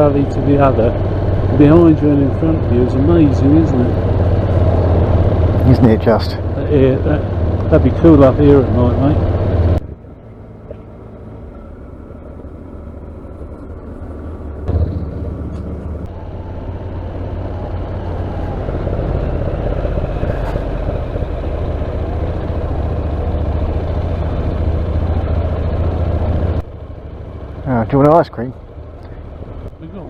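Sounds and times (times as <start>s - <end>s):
motorcycle engine rumble: 0.0s - 30.0s
wind noise: 13.4s - 26.7s.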